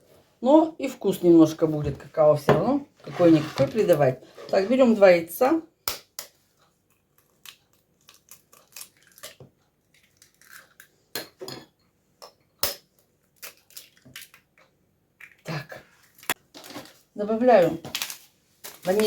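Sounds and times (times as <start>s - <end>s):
eggs cracking on a bowl: 5.8s - 11.4s, 12.2s - 15.5s.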